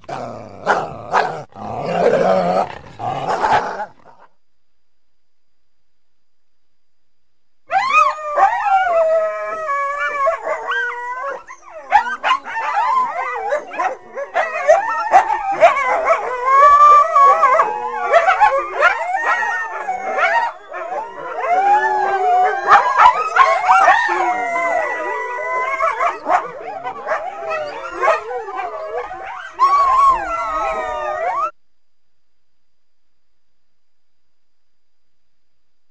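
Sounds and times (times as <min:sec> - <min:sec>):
coyotes howling and yipping: 0:07.7 - 0:31.6.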